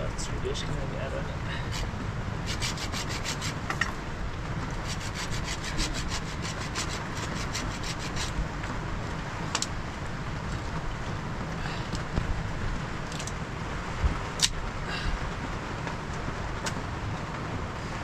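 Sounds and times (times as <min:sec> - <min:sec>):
rapid rhythmic scraping strokes: 0:01.6 - 0:03.8, 0:04.7 - 0:08.5.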